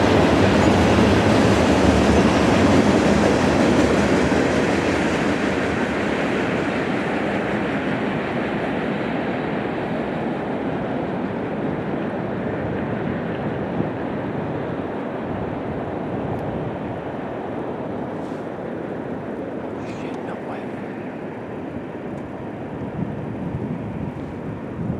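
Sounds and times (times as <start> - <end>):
train rumbling past: 0.0 - 24.9.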